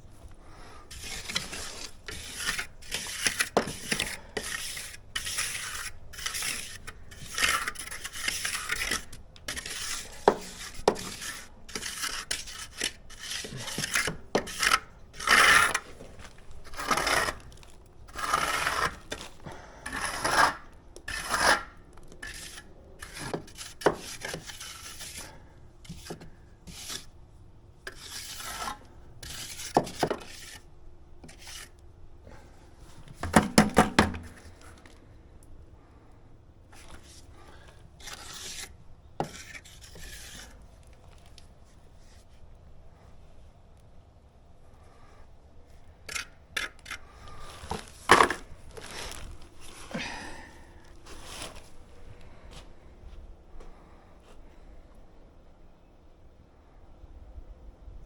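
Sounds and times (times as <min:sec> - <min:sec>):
scraping and rubbing strokes: 0:00.7 - 0:27.2, 0:27.8 - 0:33.1, 0:36.7 - 0:42.5, 0:45.0 - 0:52.6.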